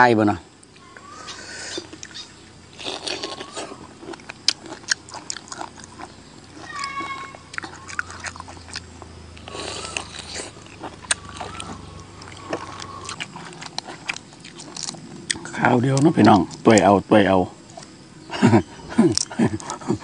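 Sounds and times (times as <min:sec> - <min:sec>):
high-pitched animal calls: 0:00.8 - 0:04.0, 0:05.9 - 0:16.6
wet chewing and lip-smacking: 0:02.8 - 0:16.9, 0:19.0 - 0:19.9.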